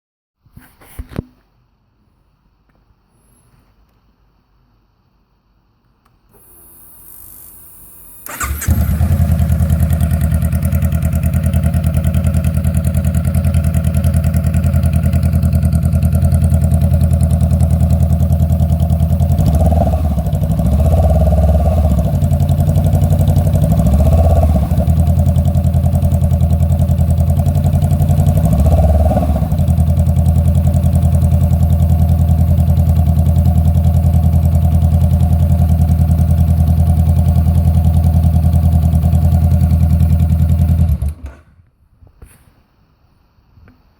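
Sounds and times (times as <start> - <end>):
starter motor cranking: 6.4 - 10.8, 40.7 - 41.5
motorcycle engine idling and revving: 7.6 - 41.4.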